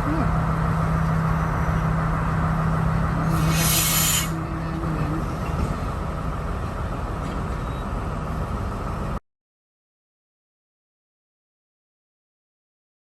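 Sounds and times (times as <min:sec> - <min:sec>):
train rumble with engine hum: 0:00.0 - 0:09.2.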